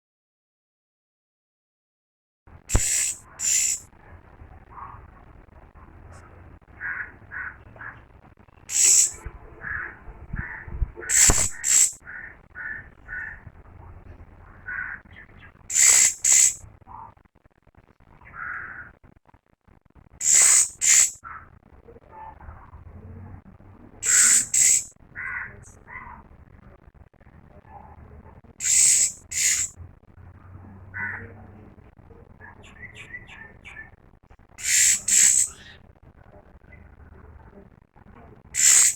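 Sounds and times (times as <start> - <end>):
robin hissing screeches: 2.7 - 3.8, 8.7 - 9.2, 11.0 - 13.3, 15.7 - 16.6, 20.2 - 21.2, 24.0 - 24.9, 28.6 - 29.7, 34.6 - 35.7, 38.6 - 38.9
soft bird chirps: 2.7 - 4.1, 6.1 - 17.1, 20.2 - 21.5, 24.0 - 26.2, 28.6 - 29.7, 32.4 - 34.0, 34.6 - 35.8, 38.6 - 38.9.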